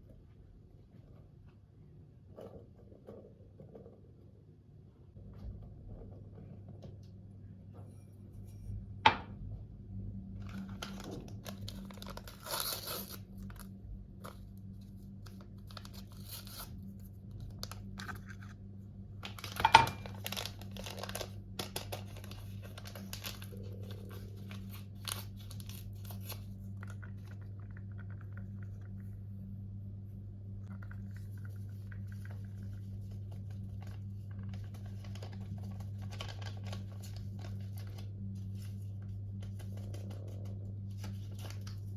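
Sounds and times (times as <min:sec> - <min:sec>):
low hum: 0:04.2 - 0:41.9
packaging rustling and crinkling: 0:10.4 - 0:14.4, 0:19.2 - 0:26.5, 0:33.3 - 0:41.9.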